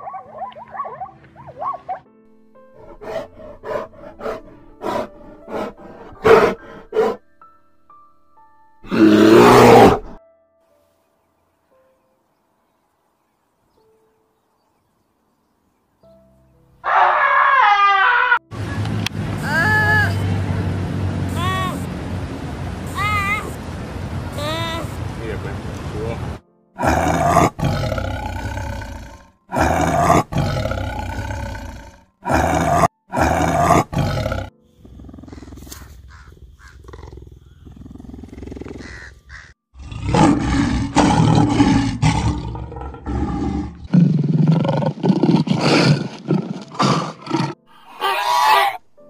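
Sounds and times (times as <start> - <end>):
lions roaring and growling: 2.8 - 7.2, 8.8 - 10.2, 26.8 - 39.0, 39.8 - 48.7
tiger roaring: 2.8 - 7.2, 8.8 - 10.2, 26.8 - 39.1, 39.8 - 48.8.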